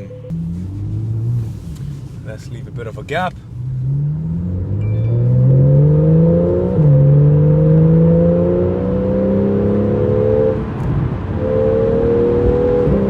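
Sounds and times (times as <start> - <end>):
car engine accelerating hard: 0.3 - 13.0.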